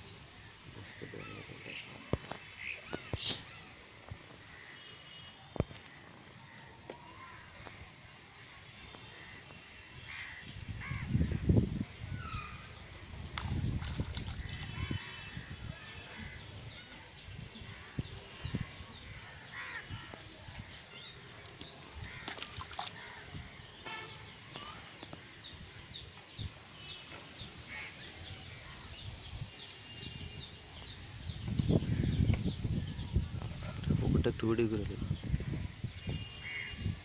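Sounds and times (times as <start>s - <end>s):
birds chirping: 8.8s - 37.0s.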